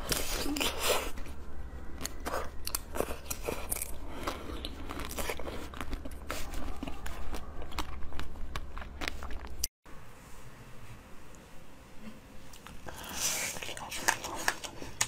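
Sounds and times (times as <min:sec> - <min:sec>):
crunching crisp dessert: 0:00.0 - 0:09.6.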